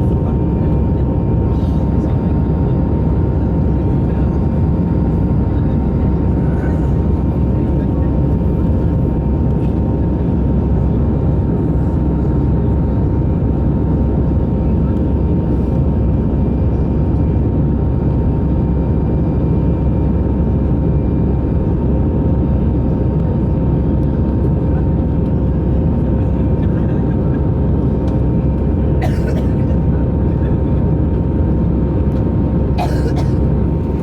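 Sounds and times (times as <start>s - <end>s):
airliner cabin roar: 0.0s - 34.0s.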